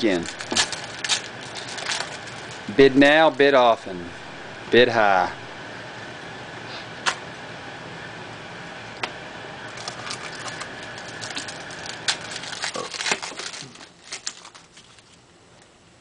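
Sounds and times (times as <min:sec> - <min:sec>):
foil card pack crinkling: 0:00.0 - 0:03.5, 0:09.7 - 0:15.3
steady background hum: 0:00.0 - 0:16.0.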